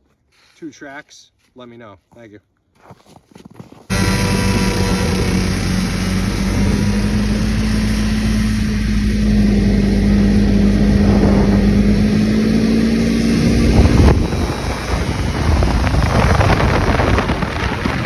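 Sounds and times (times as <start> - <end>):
two-stroke engine running: 3.9 - 18.0.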